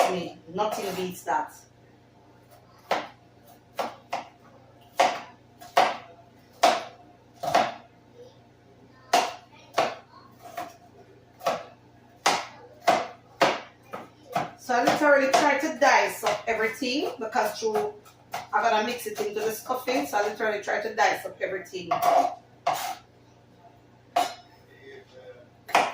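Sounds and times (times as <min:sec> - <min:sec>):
knife chopping on a cutting board: 0:02.8 - 0:06.0, 0:06.6 - 0:07.8, 0:11.4 - 0:15.6, 0:17.0 - 0:20.3, 0:21.9 - 0:23.0, 0:24.2 - 0:24.4, 0:25.7 - 0:25.9.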